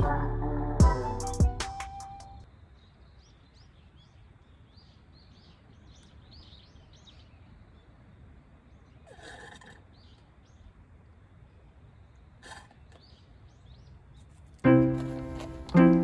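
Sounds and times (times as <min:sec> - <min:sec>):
intro music: 0:00.0 - 0:02.4, 0:14.7 - 0:16.0
low outdoor background noise: 0:00.0 - 0:16.0
small birds chirping: 0:01.2 - 0:16.0.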